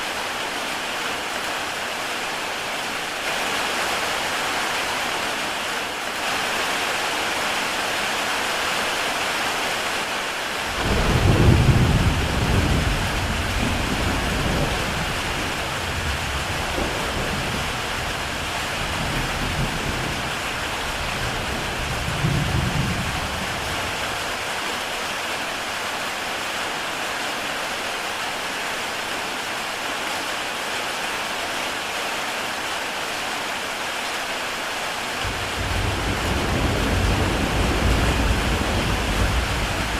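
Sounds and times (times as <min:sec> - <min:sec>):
heavy rain on a tile roof: 0:00.0 - 0:39.9
thunder rumbling: 0:10.7 - 0:24.1, 0:35.2 - 0:39.9.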